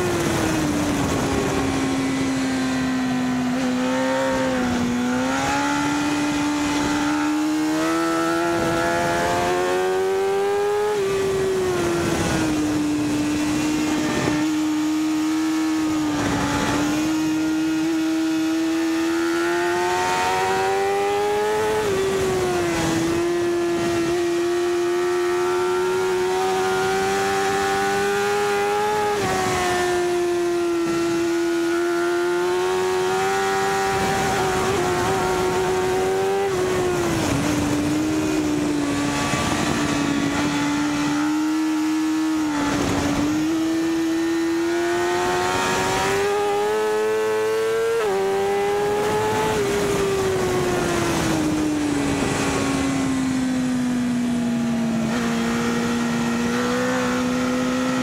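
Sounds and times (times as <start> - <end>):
motorcycle engine at high revs: 0.0 - 58.0
wind rushing: 33.4 - 46.7.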